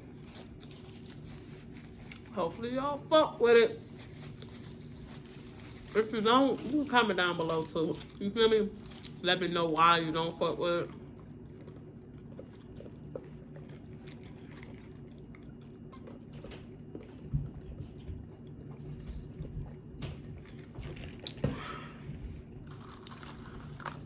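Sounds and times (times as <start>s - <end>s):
person chewing food: 0.0s - 2.3s, 10.9s - 21.4s, 22.0s - 24.0s
steady low hum: 0.0s - 24.0s.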